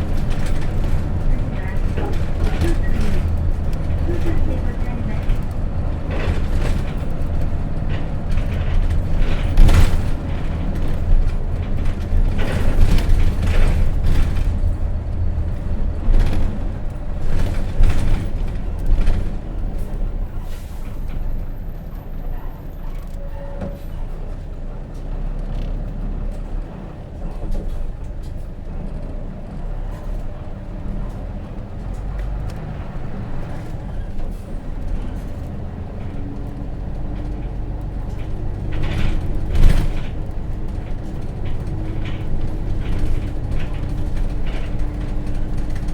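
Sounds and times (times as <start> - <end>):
bus diesel engine hum: 0.0 - 45.9
air brake noise: 20.4 - 21.3.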